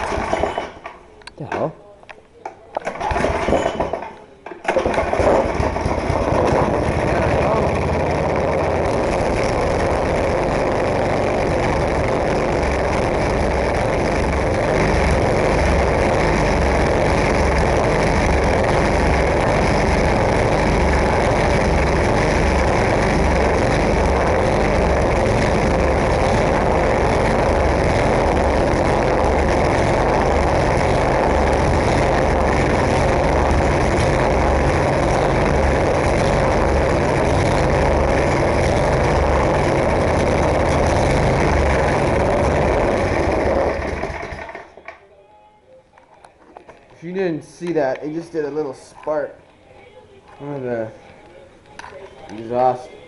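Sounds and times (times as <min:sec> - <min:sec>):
snowblower engine running: 0:00.0 - 0:00.8, 0:03.0 - 0:04.0, 0:04.7 - 0:44.9.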